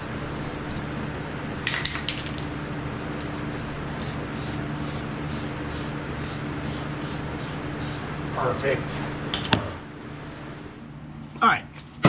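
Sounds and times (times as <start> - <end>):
aerosol spray can hissing: 0.0 - 1.0, 3.3 - 8.1.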